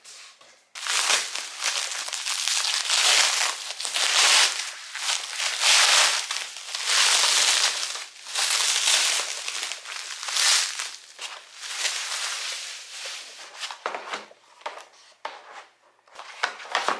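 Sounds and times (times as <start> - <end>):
bubble wrap crinkling: 0.8 - 13.8.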